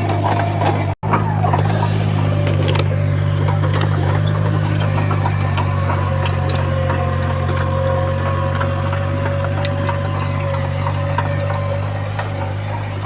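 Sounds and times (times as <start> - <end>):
diesel machinery running: 0.0 - 13.0.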